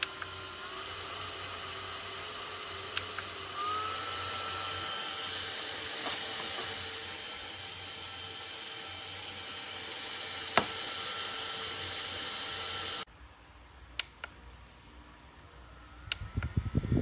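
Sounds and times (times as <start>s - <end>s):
fan motor whine: 0.0s - 17.0s.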